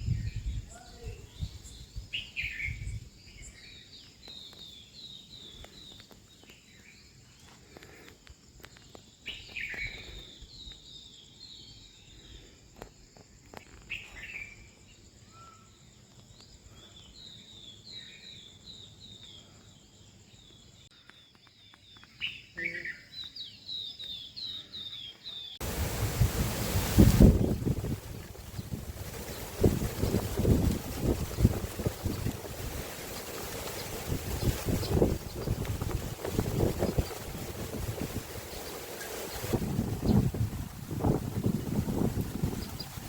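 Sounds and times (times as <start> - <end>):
wind rumble on microphone: 0.0 - 3.7, 25.6 - 43.0
birds chirping: 13.5 - 43.0
high insect drone: 25.6 - 43.0.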